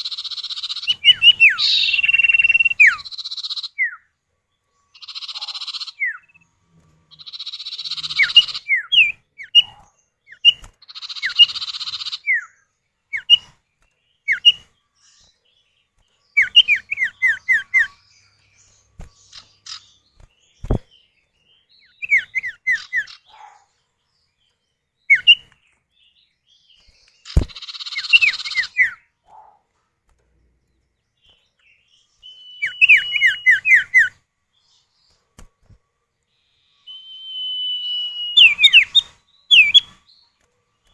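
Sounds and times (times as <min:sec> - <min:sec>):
bird whistled calls: 0:00.0 - 0:04.0, 0:05.0 - 0:06.3, 0:07.2 - 0:13.5, 0:14.3 - 0:14.6, 0:16.4 - 0:18.0, 0:21.9 - 0:23.5, 0:25.1 - 0:25.4, 0:32.2 - 0:34.2, 0:36.4 - 0:40.0.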